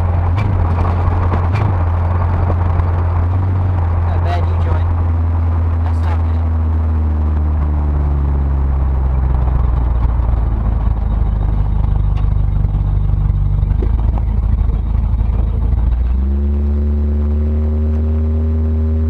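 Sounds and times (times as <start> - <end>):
car engine droning: 0.0 - 19.0
road noise: 0.0 - 19.0.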